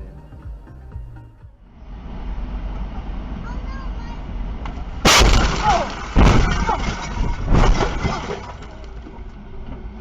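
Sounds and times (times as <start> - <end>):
car crash impacts: 4.6 - 9.1.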